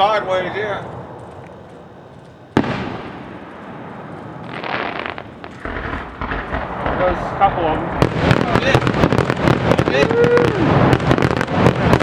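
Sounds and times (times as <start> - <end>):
fireworks crackling: 0.0 - 12.0
firework shell booming: 2.5 - 12.0.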